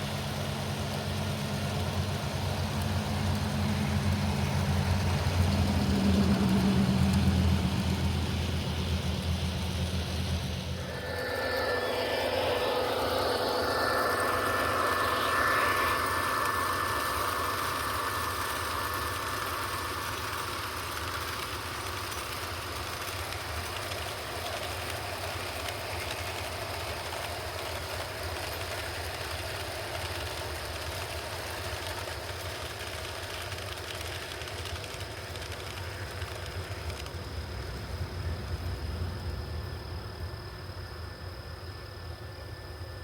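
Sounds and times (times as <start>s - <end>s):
electronic diesel engine rumble: 0.0s - 33.3s
model train wheels rolling: 0.0s - 39.7s.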